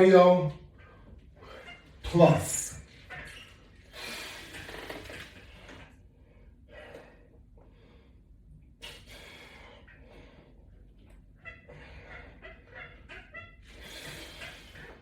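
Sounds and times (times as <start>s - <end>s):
person breathing hard: 6.2s - 10.6s, 13.7s - 15.0s.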